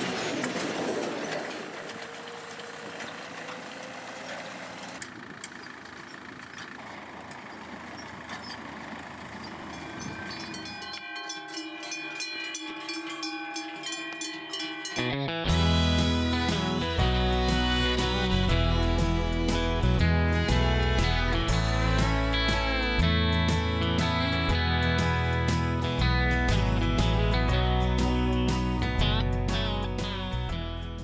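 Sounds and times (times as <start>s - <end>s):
vehicle running: 0.0s - 31.0s
steady musical tones: 9.5s - 30.2s.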